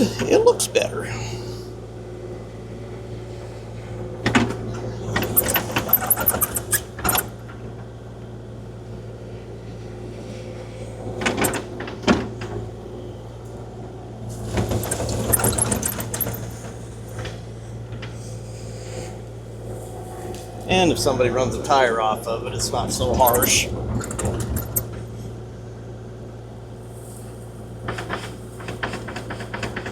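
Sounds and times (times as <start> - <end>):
excavator diesel engine running: 14.0 - 17.8, 20.7 - 25.4.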